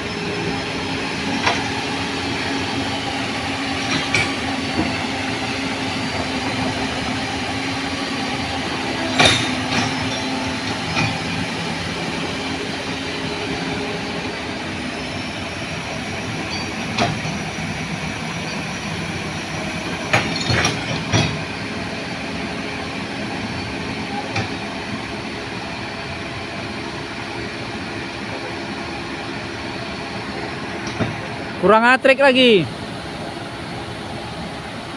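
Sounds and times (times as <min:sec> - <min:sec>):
heavy diesel machinery running: 0:00.0 - 0:34.9
sharp metallic clanks: 0:09.1 - 0:11.3.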